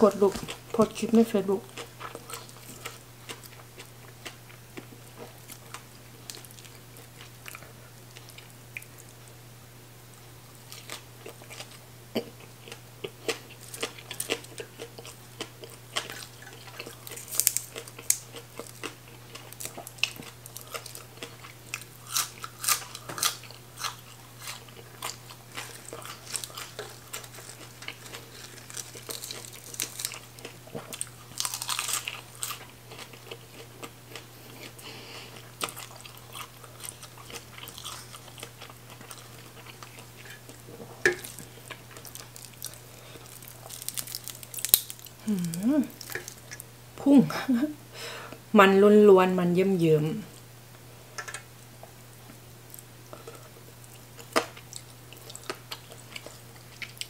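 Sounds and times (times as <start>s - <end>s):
low steady hum: 0.0s - 57.0s
crunching raw vegetables: 10.7s - 46.7s.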